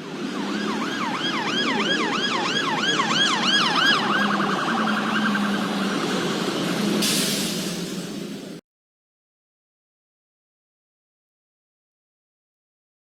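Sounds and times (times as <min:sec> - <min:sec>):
emergency siren: 0:00.0 - 0:07.1
vehicle rumble: 0:00.0 - 0:08.6.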